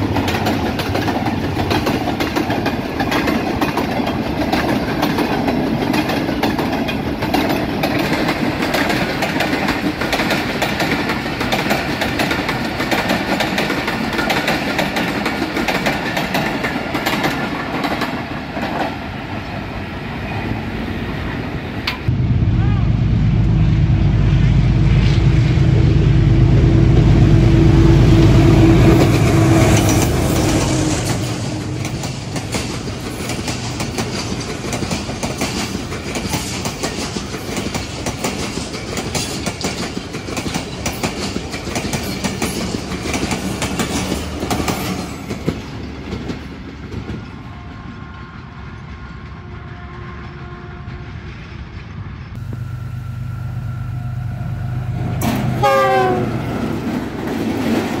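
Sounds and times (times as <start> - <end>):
train wheels clattering over rail joints: 0.0 - 19.1, 29.0 - 47.5, 56.5 - 58.0
diesel locomotive engine: 0.0 - 58.0
low locomotive engine drone: 0.0 - 58.0.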